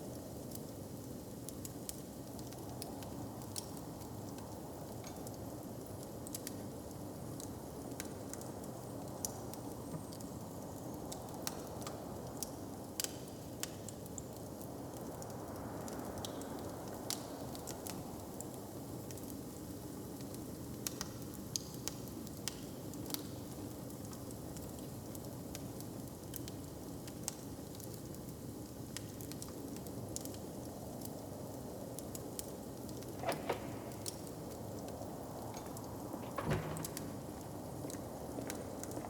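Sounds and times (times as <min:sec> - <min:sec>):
log fire crackling: 0:00.0 - 0:39.0
loud knocks: 0:35.6 - 0:37.8.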